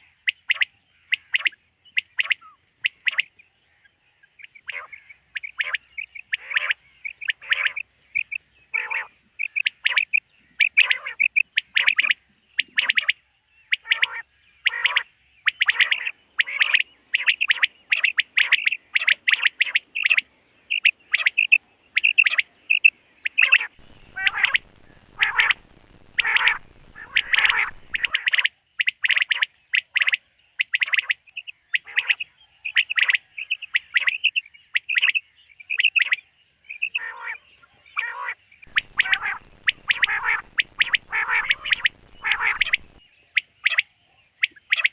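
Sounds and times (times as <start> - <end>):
quail calling: 4.5 - 31.2, 38.0 - 43.0
faint low rumble: 23.8 - 28.1, 38.7 - 43.0.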